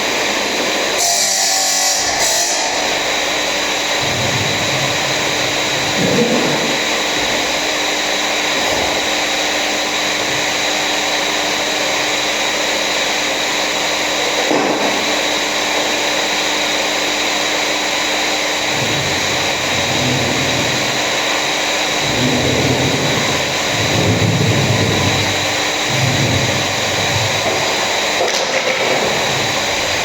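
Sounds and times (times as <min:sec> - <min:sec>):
electric motor hissing and whining: 0:00.8 - 0:12.4, 0:14.2 - 0:28.3
deep rumble: 0:18.6 - 0:30.0.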